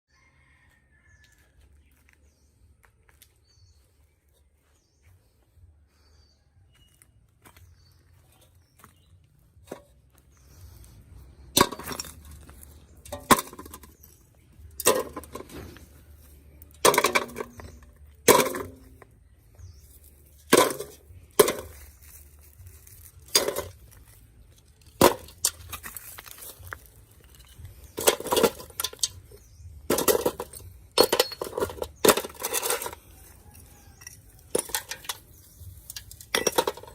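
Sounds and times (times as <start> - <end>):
phone parts clinking on hard surface: 27.2 - 36.9.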